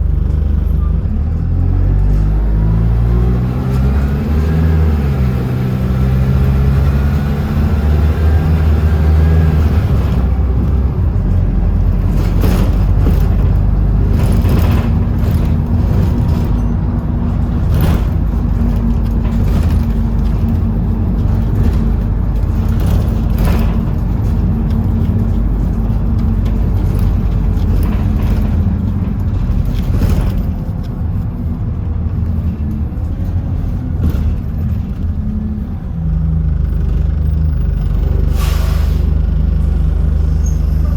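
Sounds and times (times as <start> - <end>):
bus engine rumble: 0.0 - 40.9
knocks and rattles: 9.8 - 31.2.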